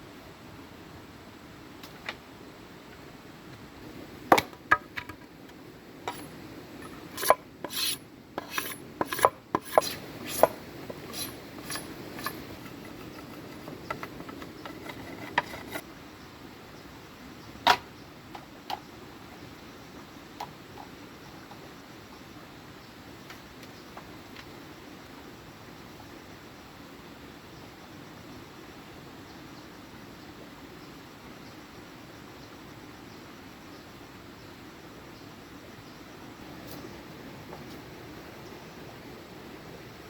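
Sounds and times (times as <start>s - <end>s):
bamboo clicking and creaking: 6.8s - 15.8s.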